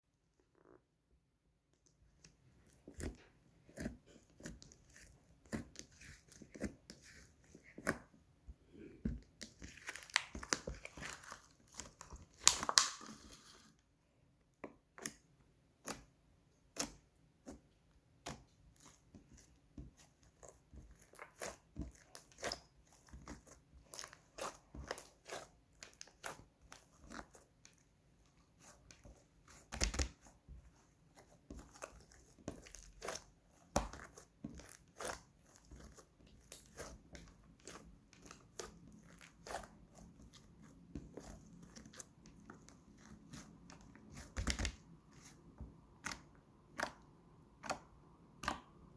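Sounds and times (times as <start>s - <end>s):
slime popping and crackling: 9.6s - 13.2s.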